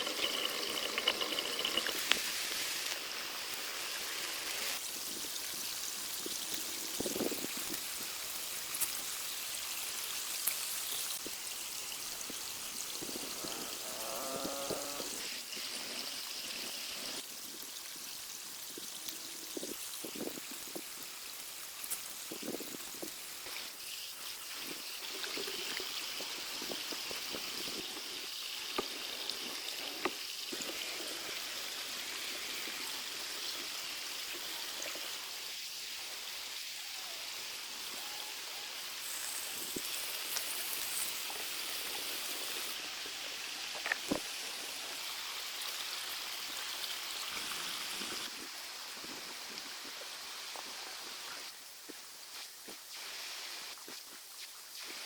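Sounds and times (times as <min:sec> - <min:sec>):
stream water flowing: 0:00.0 - 0:07.3.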